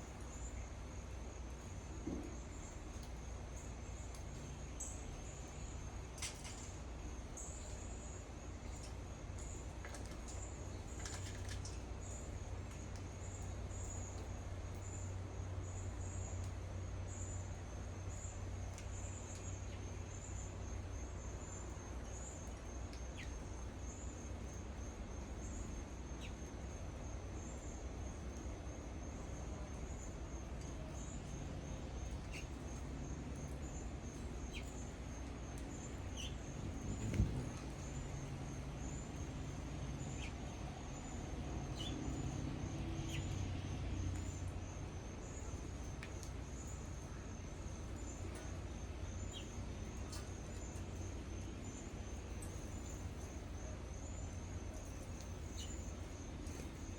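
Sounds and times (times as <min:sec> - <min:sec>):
low background hum: 0:00.0 - 0:56.9
insects chirping: 0:00.2 - 0:56.9.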